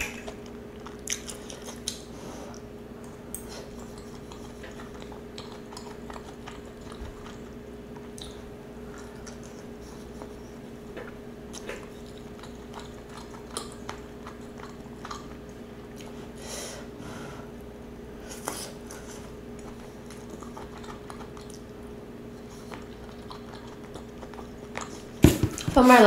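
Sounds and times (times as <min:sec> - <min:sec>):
wet chewing mouth smacks: 0:00.0 - 0:10.4, 0:11.0 - 0:16.2, 0:19.6 - 0:21.8, 0:22.4 - 0:25.1
faint steady hum: 0:00.0 - 0:26.0.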